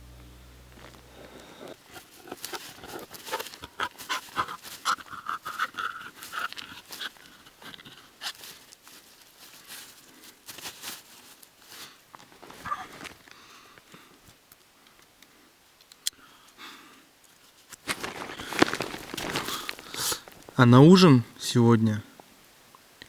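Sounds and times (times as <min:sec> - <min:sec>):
camping gear rustling and clattering: 0:00.7 - 0:15.1, 0:17.3 - 0:21.2.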